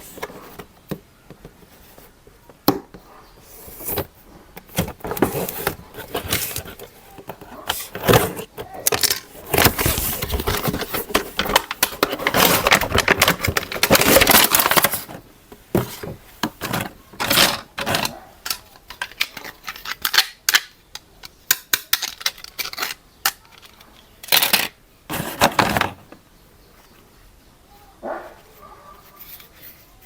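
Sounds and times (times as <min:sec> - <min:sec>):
packaging rustling: 0:03.7 - 0:20.3, 0:22.0 - 0:26.2
plastic toy parts clattering: 0:04.7 - 0:26.2.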